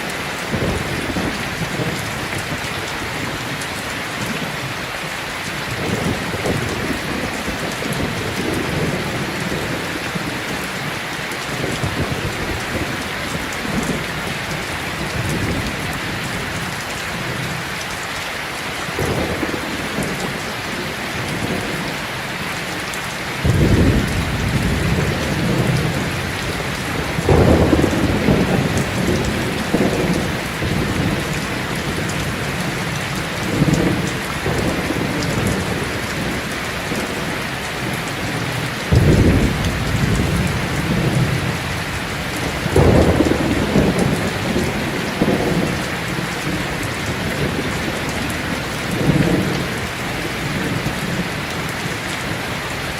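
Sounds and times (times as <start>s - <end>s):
heavy rain: 0.0s - 52.9s
rolling thunder: 23.4s - 37.3s, 37.9s - 51.2s.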